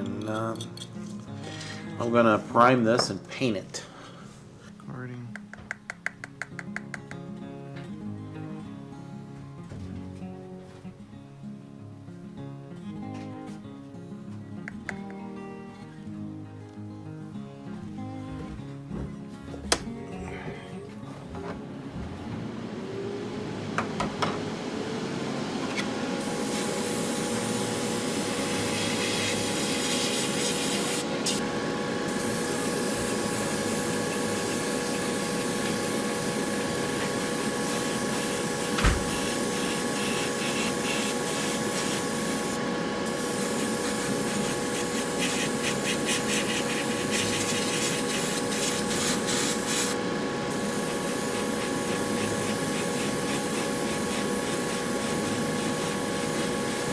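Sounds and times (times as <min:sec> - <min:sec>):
spray paint hissing: 0:26.2 - 0:31.4, 0:32.1 - 0:56.9.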